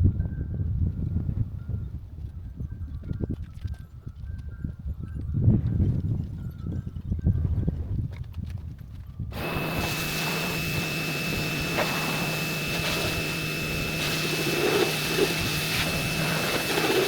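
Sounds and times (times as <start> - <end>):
motor-driven machine running: 9.4 - 17.0.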